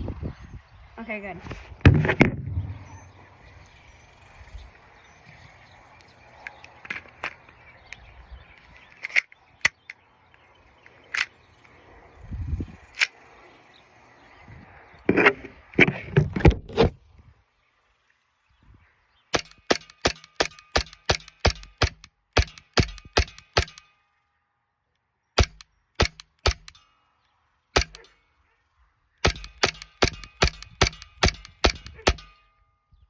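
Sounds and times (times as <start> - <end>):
airsoft pistol shots: 19.3 - 23.9, 25.4 - 26.8, 27.8 - 28.1, 29.2 - 32.4.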